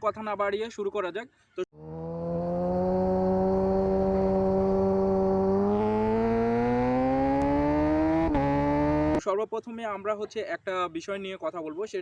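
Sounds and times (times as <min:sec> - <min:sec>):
engine drone rising in pitch: 0:01.8 - 0:09.2.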